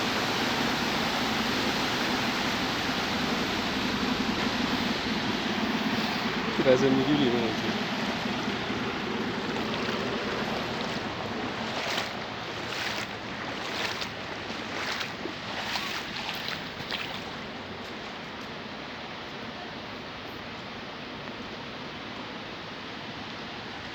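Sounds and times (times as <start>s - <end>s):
heavy rain pouring: 0.0s - 17.7s.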